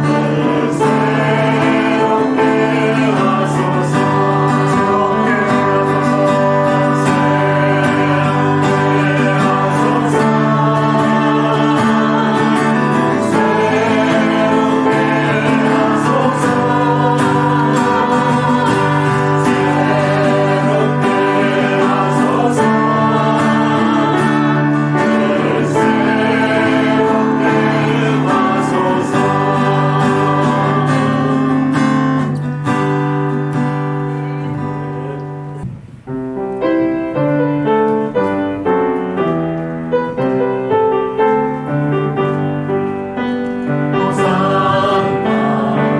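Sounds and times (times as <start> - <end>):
group singing worship song: 0.0 - 35.6, 42.1 - 45.9
keyboard playing: 0.0 - 45.9.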